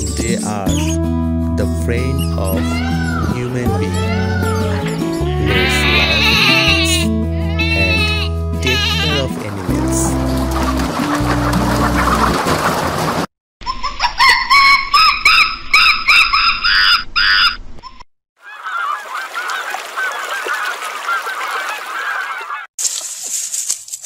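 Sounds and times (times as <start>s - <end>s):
geese honking: 7.6s - 13.3s, 18.4s - 22.7s
flock of geese calling: 8.7s - 13.2s, 18.4s - 22.7s.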